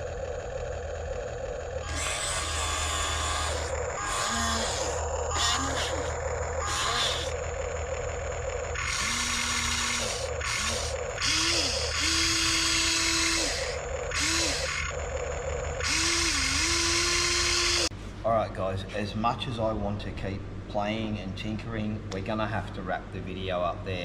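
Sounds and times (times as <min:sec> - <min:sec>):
toy excavator motors whirring: 0:00.0 - 0:17.9.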